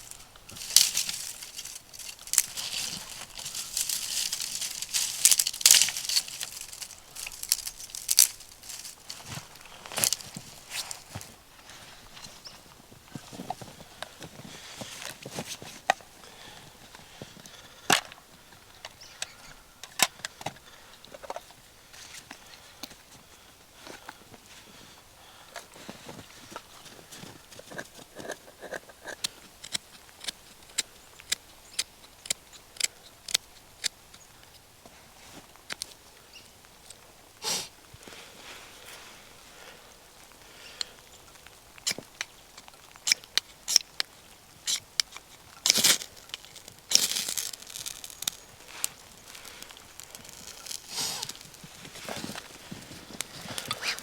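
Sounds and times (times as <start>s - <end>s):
sharp clicks and crackles: 0.0s - 9.2s, 28.2s - 34.6s, 40.8s - 54.0s
crunching or rustling noises: 0.0s - 16.1s, 25.5s - 54.0s.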